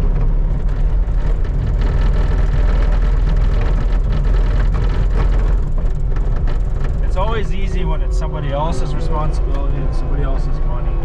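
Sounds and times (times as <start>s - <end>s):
skid steer engine running: 0.0s - 10.1s
clatter of small knocks: 0.1s - 7.4s.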